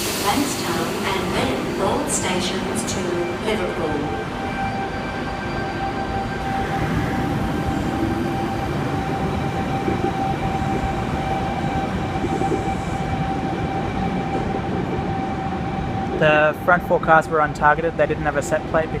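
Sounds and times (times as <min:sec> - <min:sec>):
constant high whine: 0:00.0 - 0:19.0
train wheels rumbling: 0:00.0 - 0:19.0.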